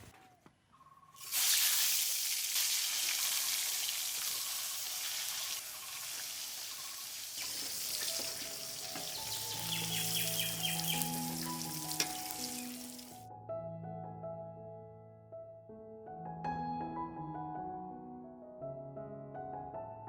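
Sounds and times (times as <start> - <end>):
food sizzling in hot oil: 1.2 - 13.2.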